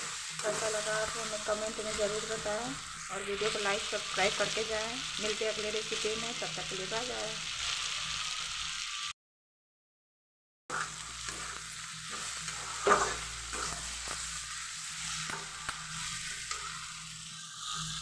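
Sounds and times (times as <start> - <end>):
vegetables sizzling in a pan: 0.0 - 9.2, 10.7 - 18.0
steel spatula scraping a pan: 10.7 - 18.0.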